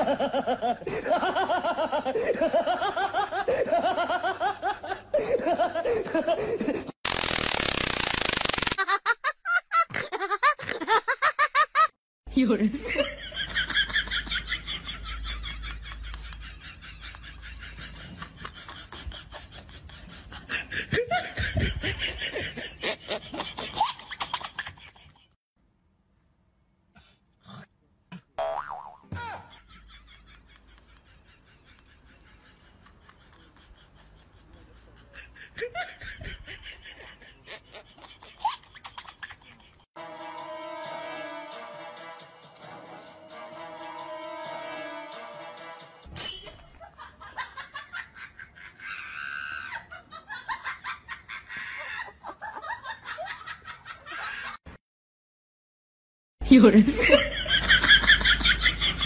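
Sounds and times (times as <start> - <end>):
laughter in rhythmic bursts: 0.0 - 7.0, 8.8 - 12.0, 12.8 - 25.4, 29.2 - 40.0, 46.8 - 49.1, 49.7 - 54.6, 56.9 - 59.0
high-pitched laughter: 46.5 - 54.6.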